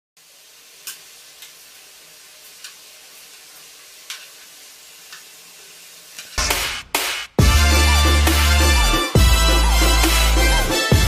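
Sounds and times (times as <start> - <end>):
food sizzling in oil: 0.2 - 6.4.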